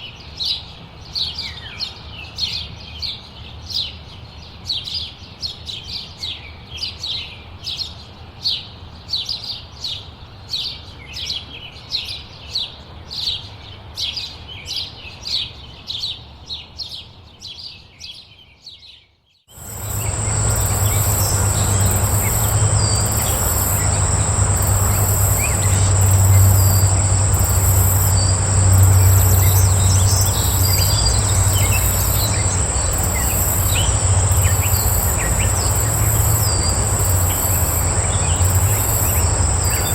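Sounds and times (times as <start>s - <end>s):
insect drone: 19.5s - 39.9s
faint chirps: 19.6s - 39.9s
low rumble: 19.6s - 39.9s
pulsing buzz: 19.6s - 39.9s
songbird chirping: 19.6s - 39.9s.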